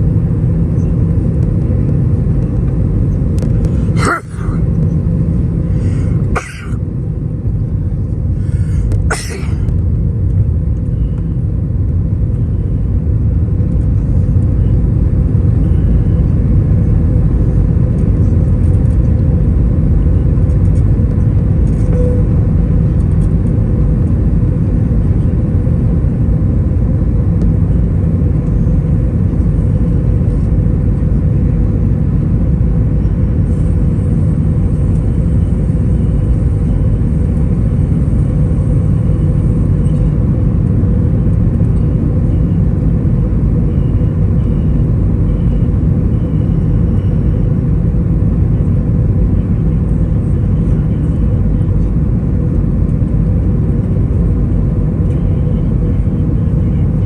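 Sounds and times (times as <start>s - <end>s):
aircraft cabin rumble: 0.0s - 57.0s.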